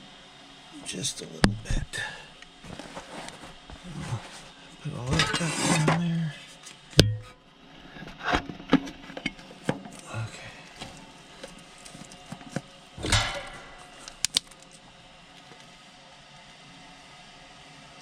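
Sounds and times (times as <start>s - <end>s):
tool clatter: 5.1s - 6.0s, 7.0s - 7.4s, 11.4s - 14.4s.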